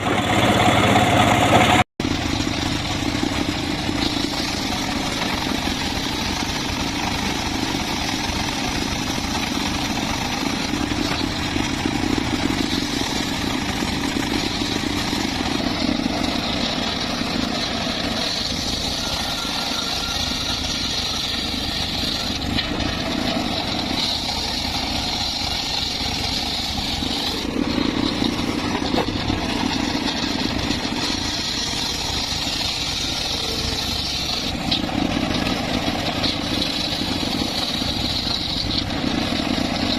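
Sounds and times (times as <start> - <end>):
circular saw engine whining: 0.0 - 39.9.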